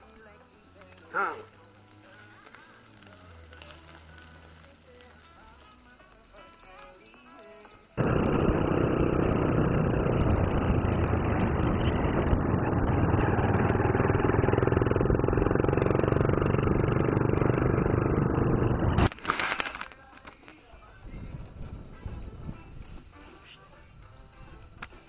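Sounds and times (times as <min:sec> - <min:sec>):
motorcycle engine drone: 0:08.0 - 0:19.1
wind noise: 0:09.3 - 0:14.4, 0:20.8 - 0:25.0.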